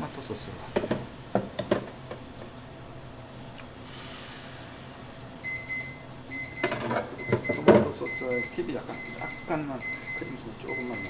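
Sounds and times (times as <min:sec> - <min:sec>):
short hiss: 0:03.8 - 0:05.0.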